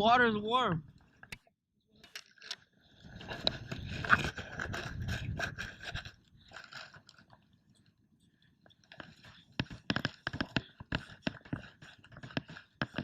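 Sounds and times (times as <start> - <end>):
digging in wet sand: 8.6 - 13.0.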